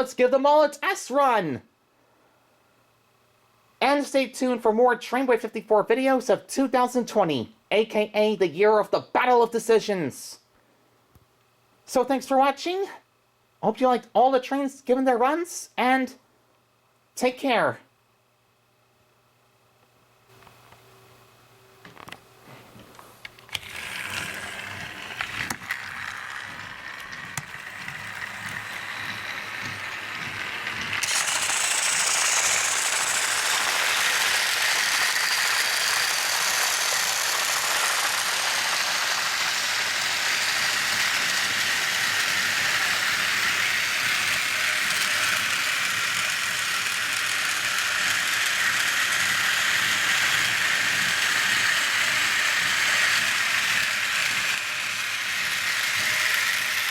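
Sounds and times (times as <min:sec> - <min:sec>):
toy train motor whirring: 0:23.3 - 0:56.9.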